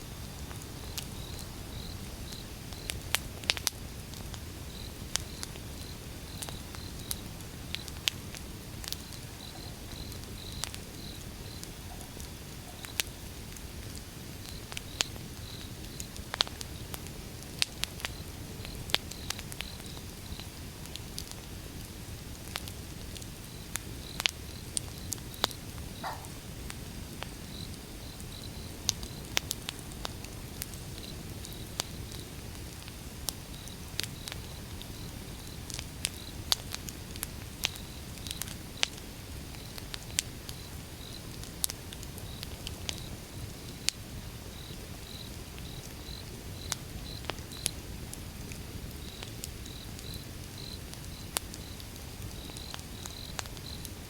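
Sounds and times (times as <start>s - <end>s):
wood fire crackling: 0.0s - 54.0s
faint high chirping: 26.0s - 26.4s.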